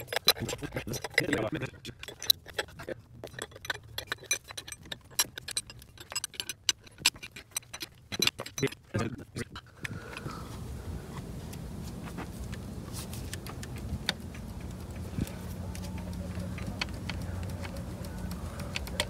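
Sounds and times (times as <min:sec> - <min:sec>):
ratchet wrench clicking: 0:00.0 - 0:08.6, 0:13.6 - 0:19.0
background noise: 0:00.0 - 0:19.0.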